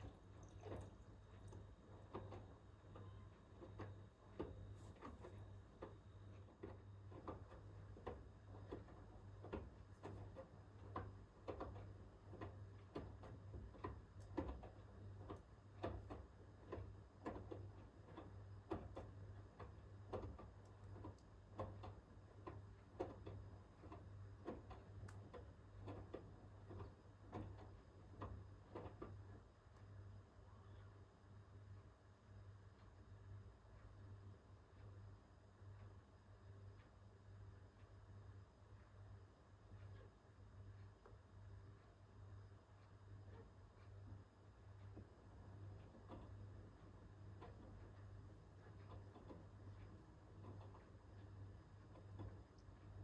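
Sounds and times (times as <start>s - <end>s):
laundry tumbling in washing machine: 0.0s - 29.5s
washing machine low hum: 0.0s - 53.0s.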